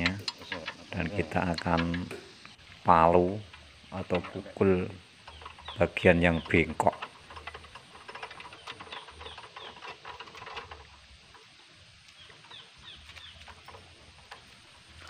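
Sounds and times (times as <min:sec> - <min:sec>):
faint bird chirps: 0:12.0 - 0:13.8.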